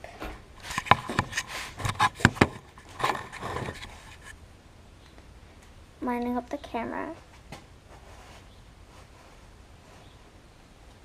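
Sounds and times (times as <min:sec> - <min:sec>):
tape rustling: 0:00.6 - 0:04.4
sharp clicks and knocks: 0:00.7 - 0:04.2.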